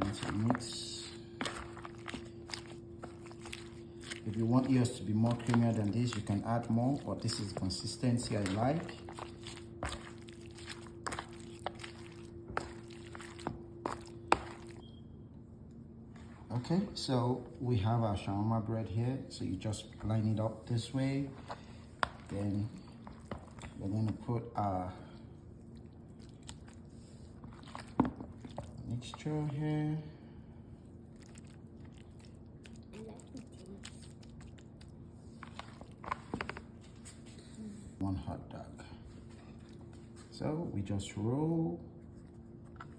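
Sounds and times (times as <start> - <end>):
sauce spreading scrapes: 0.0 - 14.8, 20.0 - 29.5, 31.0 - 36.8
steady hum: 0.0 - 42.9.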